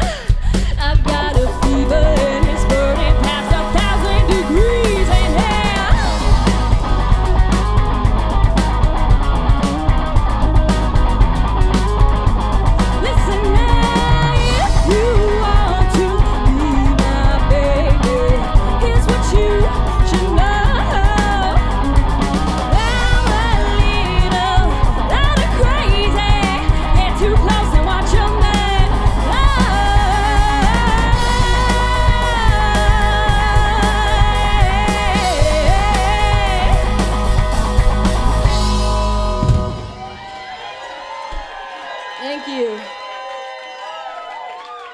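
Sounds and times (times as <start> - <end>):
person singing: 0.0 - 7.6, 12.9 - 38.3
live rock band playing: 0.0 - 40.6.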